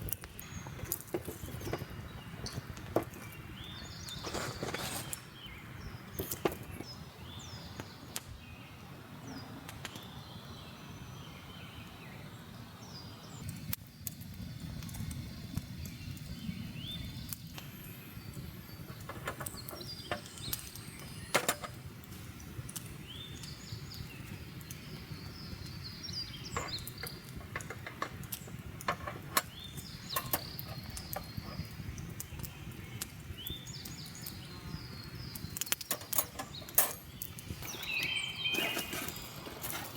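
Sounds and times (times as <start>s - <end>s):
birds chirping: 0.0s - 13.6s, 15.2s - 39.9s
sharp clicks and pops: 24.6s - 34.4s, 35.3s - 39.3s.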